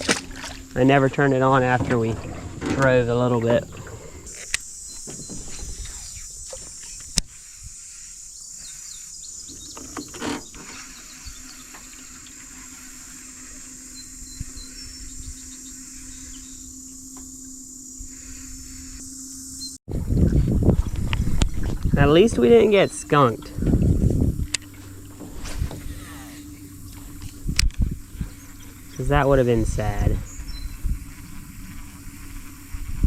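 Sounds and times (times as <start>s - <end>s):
insects droning: 0.0s - 33.0s
low steady hum: 0.0s - 33.0s
faint bird chirps: 7.8s - 19.8s.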